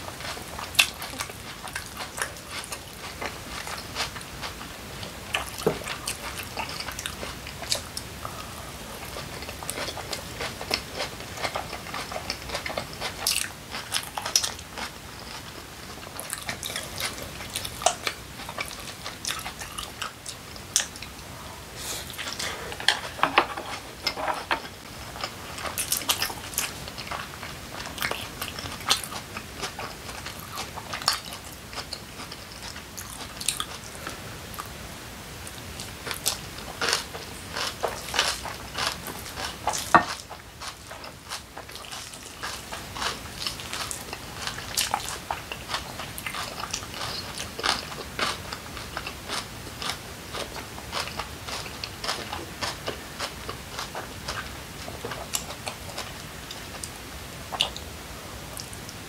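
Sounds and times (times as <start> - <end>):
person chewing and biting food: 21.8 - 34.7, 35.8 - 57.9.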